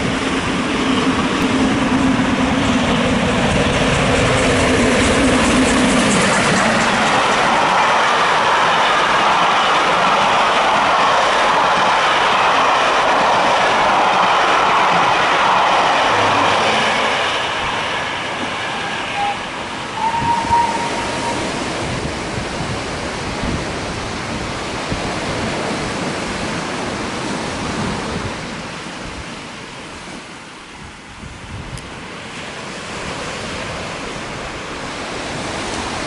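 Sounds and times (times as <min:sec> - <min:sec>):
train coaches clattering on rails: 0:00.0 - 0:22.7
short high train whistle: 0:18.6 - 0:21.6
surf washing on beach: 0:20.9 - 0:36.0.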